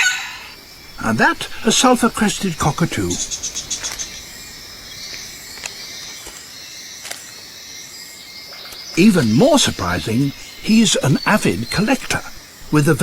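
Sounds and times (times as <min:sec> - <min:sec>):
insect chorus: 0:00.0 - 0:13.0.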